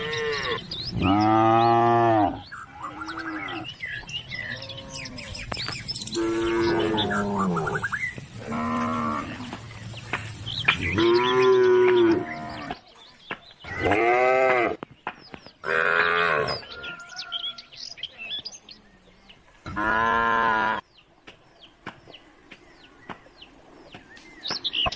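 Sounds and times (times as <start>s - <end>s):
cows mooing: 0.0s - 5.5s, 6.1s - 9.6s, 10.8s - 12.8s, 13.7s - 14.8s, 15.6s - 16.7s, 19.7s - 20.8s.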